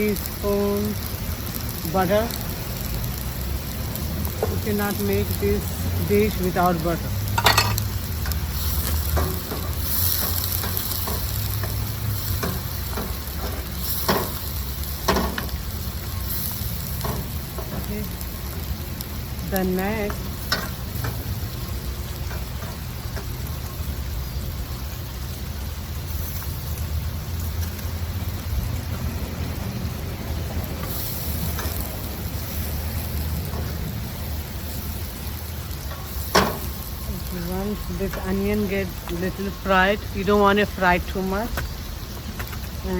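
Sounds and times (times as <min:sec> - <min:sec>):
onion paste sizzling in pan: 0:00.0 - 0:42.9
spoon knocking and scraping pan: 0:07.4 - 0:07.8.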